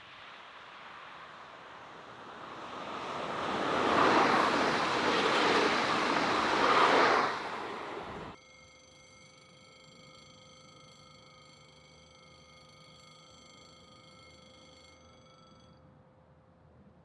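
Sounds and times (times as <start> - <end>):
passenger train passing: 0.0 - 8.4.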